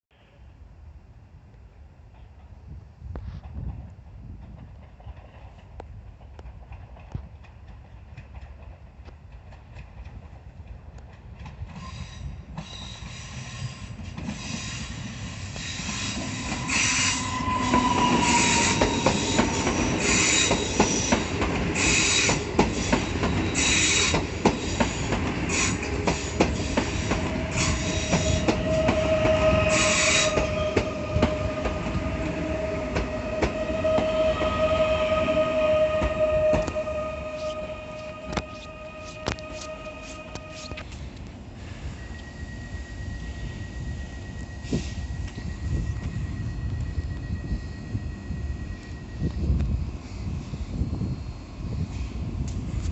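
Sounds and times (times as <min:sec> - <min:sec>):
train wheels clicking over rail joints: 0:03.3 - 0:34.1
train wheels squealing: 0:11.7 - 0:52.4.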